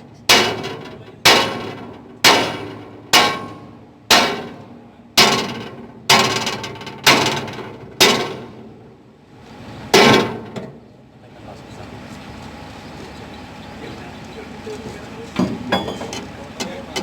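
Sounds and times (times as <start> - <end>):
hammer clanging on steel plate: 0.3 - 4.6.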